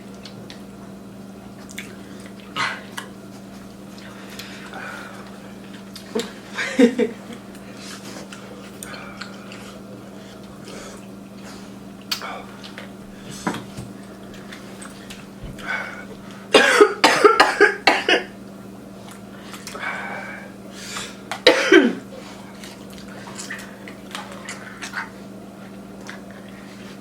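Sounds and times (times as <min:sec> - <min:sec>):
person coughing: 0:16.5 - 0:18.3, 0:21.4 - 0:22.1.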